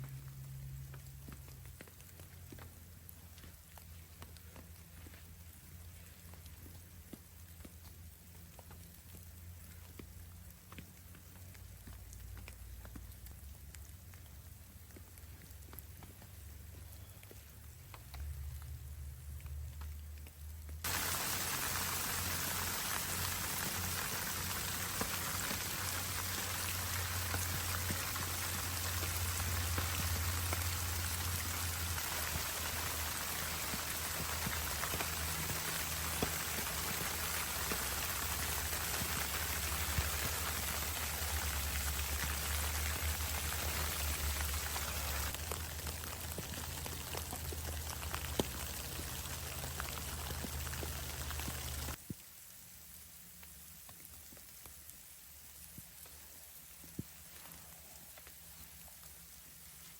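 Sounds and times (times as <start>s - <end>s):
low rumble: 0.0s - 3.0s
rain pattering on a surface: 0.0s - 59.9s.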